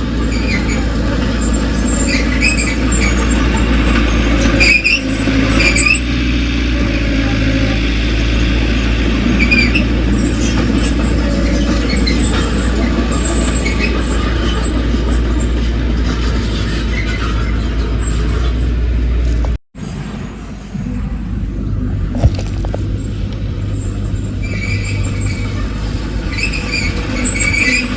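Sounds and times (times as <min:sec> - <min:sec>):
heavy diesel machinery running: 0:00.0 - 0:27.9
short high squeaks: 0:00.3 - 0:06.1, 0:23.0 - 0:27.9.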